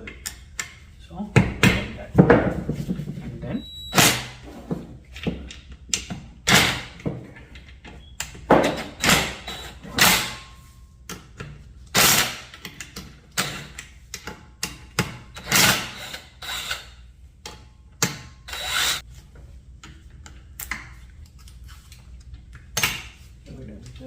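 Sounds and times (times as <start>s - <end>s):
tool scraping: 18.1s - 19.1s.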